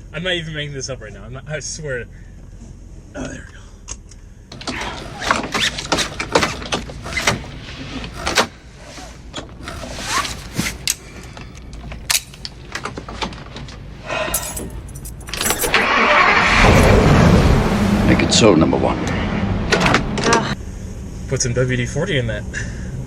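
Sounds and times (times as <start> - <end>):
squeaky mechanism clicking and clunking: 4.5 - 13.8.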